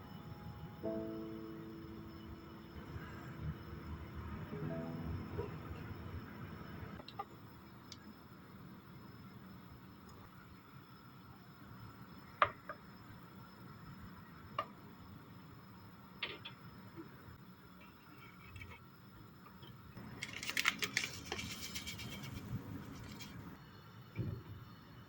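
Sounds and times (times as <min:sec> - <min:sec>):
dense crackling rustle: 0:20.0 - 0:23.6.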